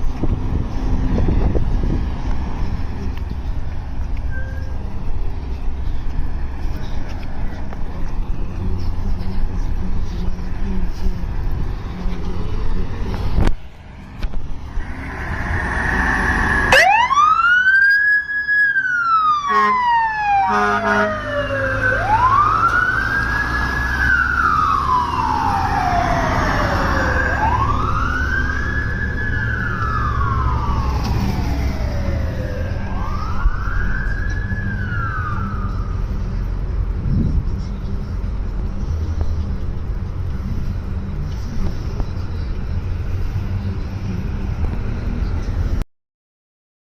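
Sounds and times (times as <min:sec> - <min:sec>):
low engine rumble: 0:00.0 - 0:17.6, 0:21.1 - 0:45.8
fire truck siren wailing: 0:14.8 - 0:36.1
short horn blasts: 0:19.5 - 0:19.8, 0:20.5 - 0:21.2.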